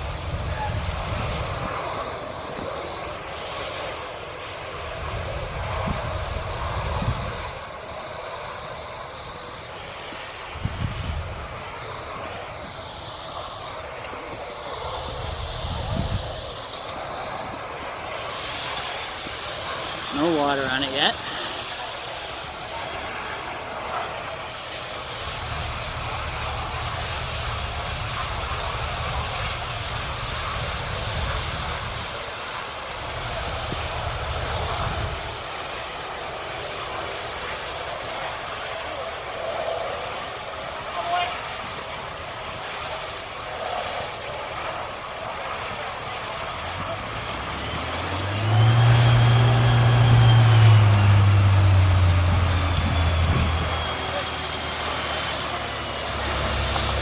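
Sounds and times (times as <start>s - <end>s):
fire roaring: 0.0s - 57.0s
deep rumble: 46.6s - 55.0s.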